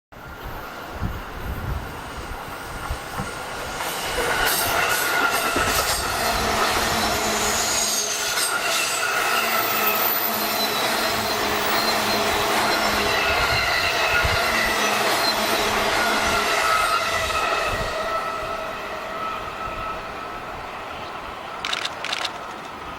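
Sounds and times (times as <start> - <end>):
electric train running past: 0.2 - 22.9
high squealing tones: 5.7 - 20.4.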